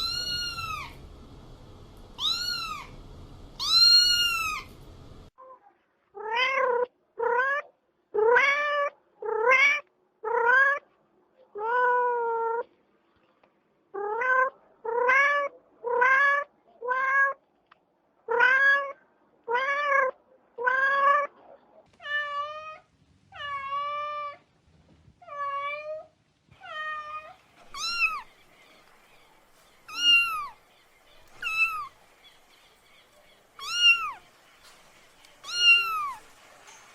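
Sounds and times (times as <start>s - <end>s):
cat meowing: 0.0s - 1.0s, 2.2s - 3.0s, 3.6s - 4.7s, 6.2s - 10.8s, 14.0s - 17.4s, 18.3s - 21.3s, 22.0s - 24.4s, 25.2s - 28.3s, 29.9s - 30.6s, 31.3s - 32.0s, 33.6s - 34.2s, 35.4s - 36.3s
kitten mewing: 0.0s - 1.0s, 2.2s - 3.0s, 3.6s - 4.7s, 26.7s - 28.3s, 29.9s - 30.5s, 31.3s - 31.9s, 33.6s - 34.2s, 35.4s - 36.2s.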